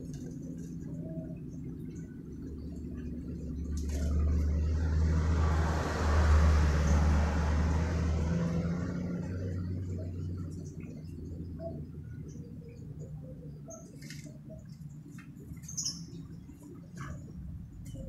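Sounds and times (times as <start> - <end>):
vehicle passing by: 3.4 - 11.8.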